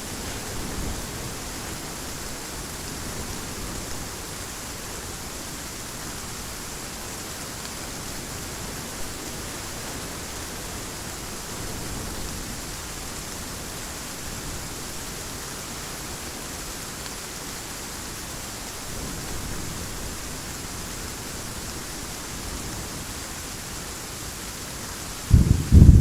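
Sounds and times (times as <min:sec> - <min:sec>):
heavy rain falling: 0:00.0 - 0:26.0
distant thunder rumbles: 0:25.3 - 0:26.0.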